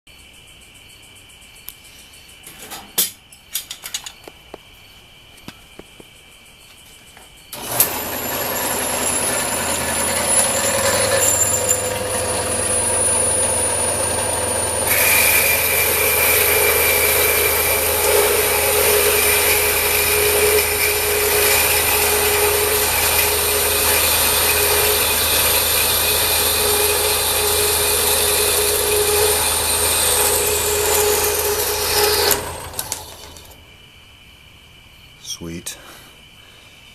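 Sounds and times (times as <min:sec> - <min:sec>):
bandsaw running: 0:07.6 - 0:33.6.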